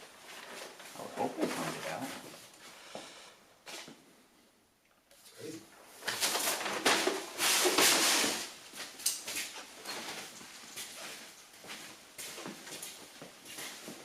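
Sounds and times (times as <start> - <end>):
loud rustling scrape: 6.2 - 8.6.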